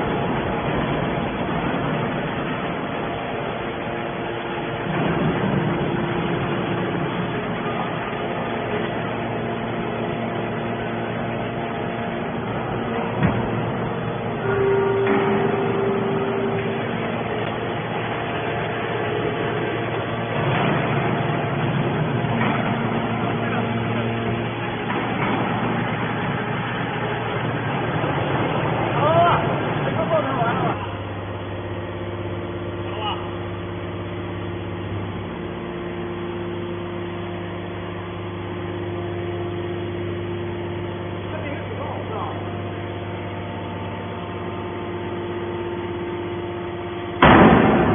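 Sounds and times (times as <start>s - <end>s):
baler motor and pump humming: 0.0s - 47.9s
heavy machinery running: 0.0s - 47.9s
faint held tones: 14.4s - 17.6s.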